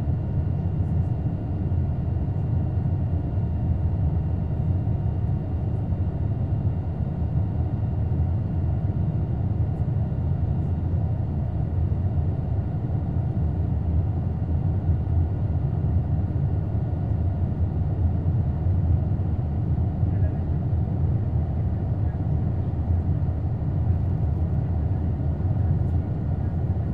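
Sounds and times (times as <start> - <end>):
airplane cabin rumble: 7.6 - 26.9.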